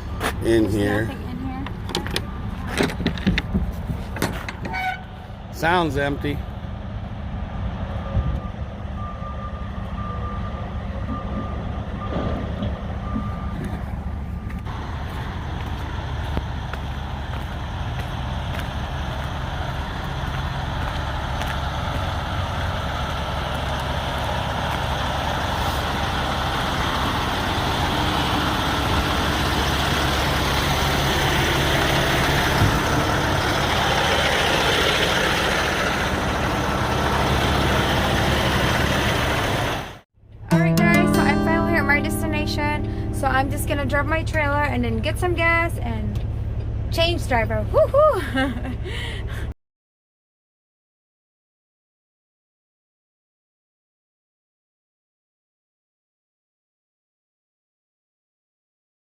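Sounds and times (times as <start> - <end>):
diesel truck engine running: 0.0 - 49.5
road noise: 0.0 - 49.6
high beep: 40.5 - 44.3.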